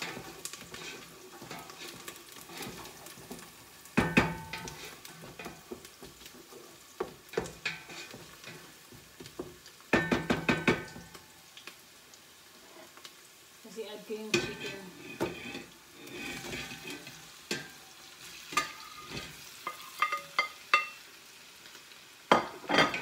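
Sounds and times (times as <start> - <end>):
wooden spoon stirring and scraping: 0.0 - 10.3, 14.2 - 20.9
onions sizzling in oil: 0.0 - 23.0.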